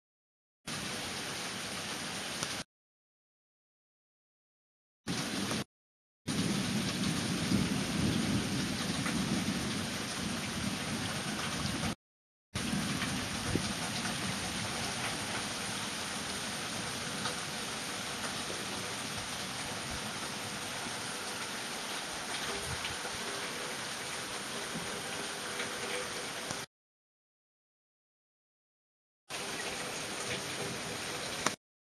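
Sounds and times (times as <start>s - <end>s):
rain falling: 0.7s - 2.6s, 5.1s - 5.7s, 6.3s - 12.0s, 12.6s - 26.7s, 29.3s - 31.6s
low rumble of thunder: 6.3s - 12.0s, 12.6s - 16.4s.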